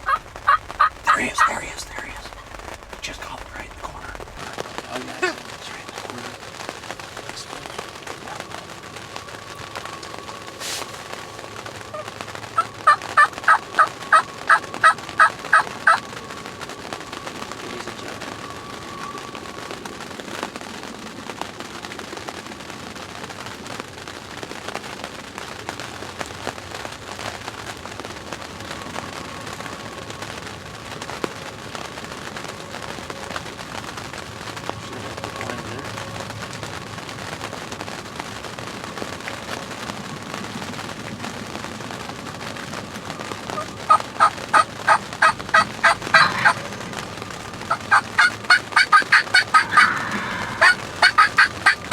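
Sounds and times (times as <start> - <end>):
turkey yelps: 0.0 - 1.6, 11.9 - 16.0, 43.5 - 51.9
steady background hiss: 0.0 - 51.9.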